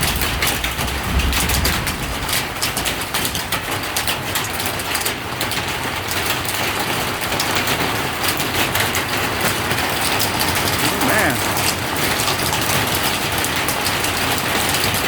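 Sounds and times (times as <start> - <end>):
raindrops pattering close by: 0.0 - 15.0
steady rain hiss: 10.4 - 12.2.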